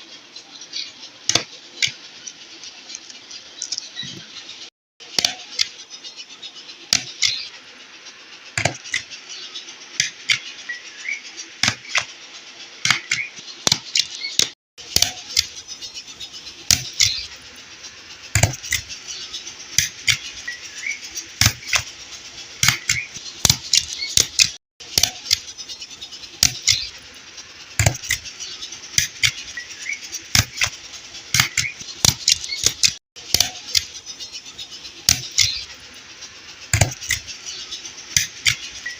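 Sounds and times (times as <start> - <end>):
steady hiss: 0.0 - 38.9
objects clicking and rustling: 1.3 - 4.3.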